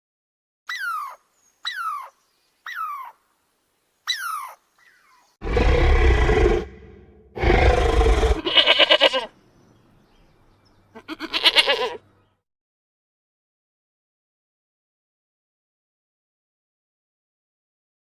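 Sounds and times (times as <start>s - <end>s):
animal roaring: 5.4s - 8.6s.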